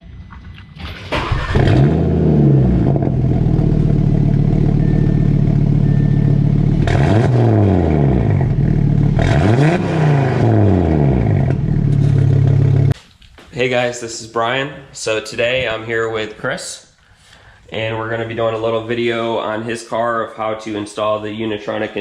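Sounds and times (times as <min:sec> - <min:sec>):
car engine starting and revving: 0:00.0 - 0:13.0.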